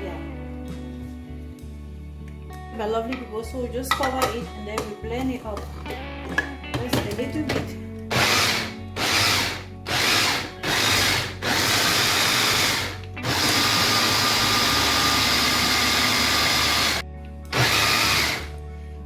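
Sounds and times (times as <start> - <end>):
blender blending: 8.1 - 18.5.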